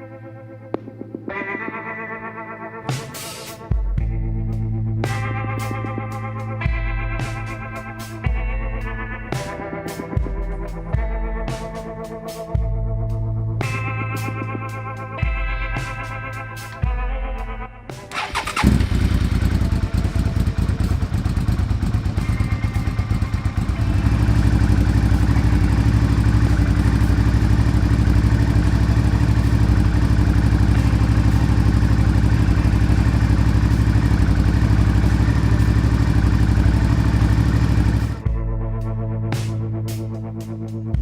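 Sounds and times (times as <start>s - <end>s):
engine idling: 18.1s - 38.2s
motorcycle engine starting: 18.1s - 38.3s.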